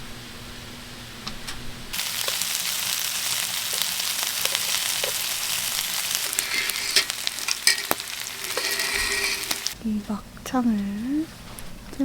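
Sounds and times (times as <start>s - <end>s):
meat sizzling on a pan: 1.9s - 9.8s.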